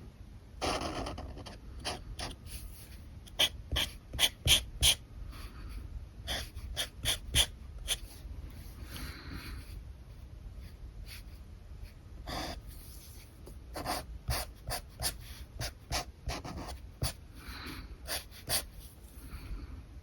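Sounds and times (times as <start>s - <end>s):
marker scratching on paper: 0.6s - 5.0s, 6.3s - 8.2s, 11.1s - 17.2s, 18.1s - 18.9s.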